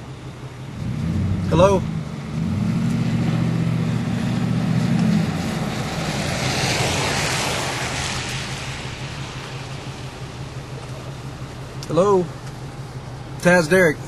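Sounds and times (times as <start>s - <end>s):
vehicle engine humming: 0.0s - 14.0s
wind rushing: 0.9s - 10.7s.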